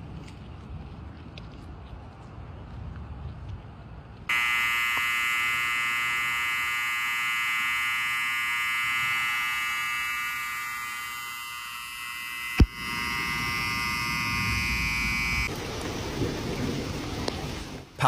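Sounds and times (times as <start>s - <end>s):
low wind rumble: 0.0s - 4.3s
electronic buzzing alarm tone: 4.3s - 15.5s.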